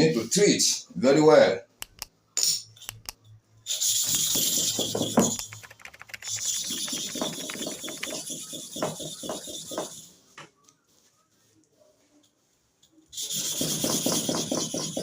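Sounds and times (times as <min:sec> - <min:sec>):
scrubbing on sharpening stone: 0:06.2 - 0:10.1.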